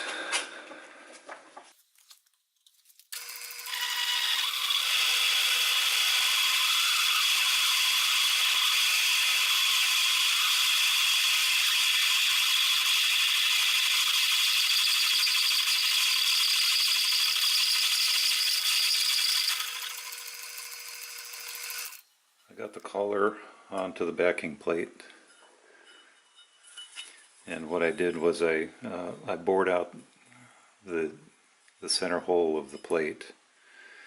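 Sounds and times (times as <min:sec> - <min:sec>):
lathe drilling metal: 0:03.2 - 0:22.0.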